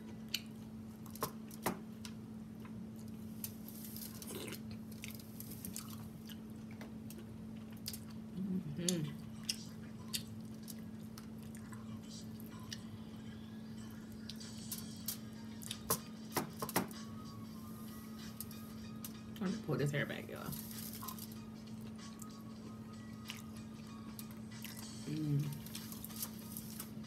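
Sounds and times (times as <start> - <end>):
steady low hum: 0.0 - 27.0
person humming: 8.3 - 9.2, 24.8 - 25.8
wet chewing and lip smacks: 9.4 - 11.8.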